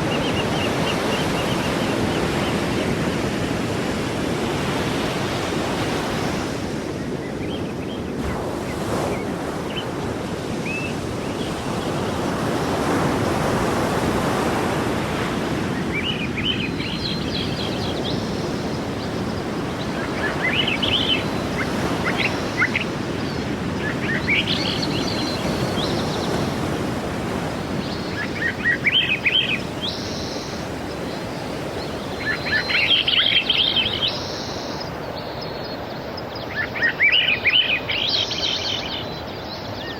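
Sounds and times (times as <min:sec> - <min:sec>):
birds chirping: 0:00.0 - 0:03.6, 0:15.2 - 0:39.9
sea waves washing ashore: 0:00.0 - 0:39.9.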